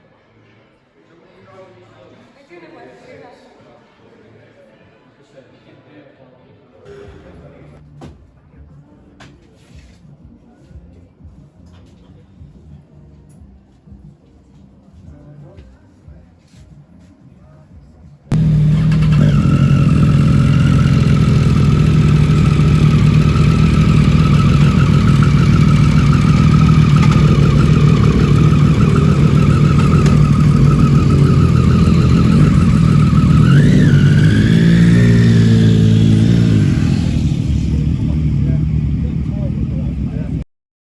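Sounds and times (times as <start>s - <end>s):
vehicle engine running: 18.3s - 40.4s.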